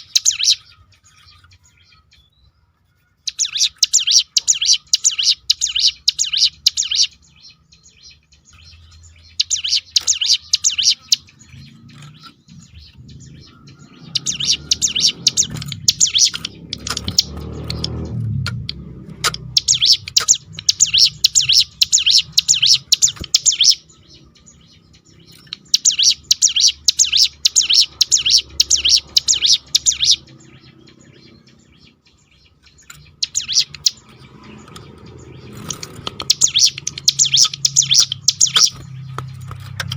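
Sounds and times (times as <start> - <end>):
bird trilling song: 0.0 - 39.9.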